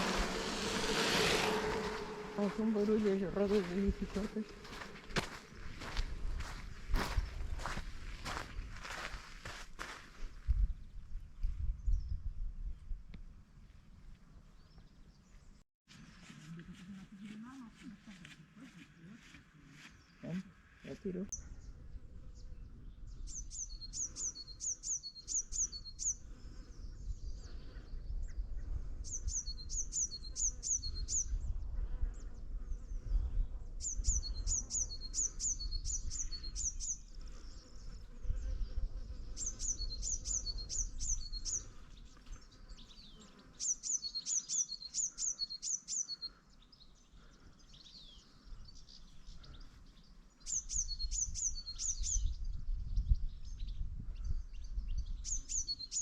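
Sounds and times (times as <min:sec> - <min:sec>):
low steady rumble: 0:00.0 - 0:05.2
small songbird singing: 0:22.4 - 0:56.0.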